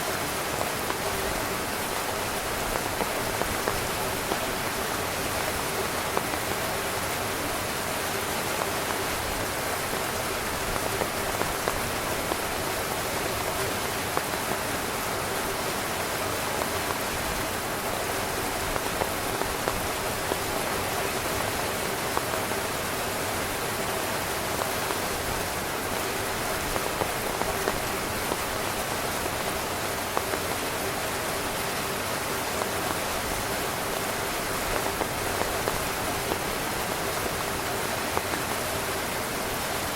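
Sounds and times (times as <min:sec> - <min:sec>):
rain hissing on a tent: 0:00.0 - 0:39.9
drops tapping on fabric: 0:00.6 - 0:07.5, 0:16.5 - 0:21.2, 0:24.6 - 0:31.3, 0:32.5 - 0:38.6.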